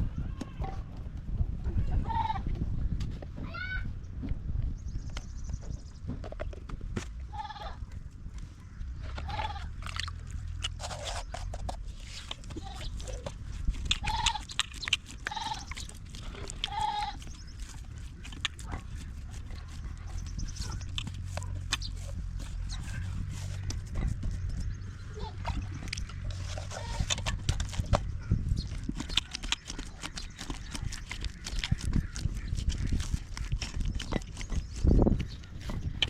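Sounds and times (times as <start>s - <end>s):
steady low rumble: 0.0s - 36.0s
goats bleating: 14.0s - 14.4s, 15.2s - 15.7s, 16.4s - 17.2s.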